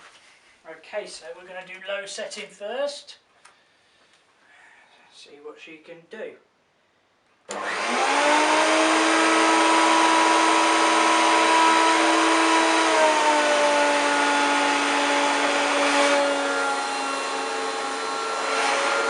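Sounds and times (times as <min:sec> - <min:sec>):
vacuum cleaner motor whine: 0:07.5 - 0:19.0.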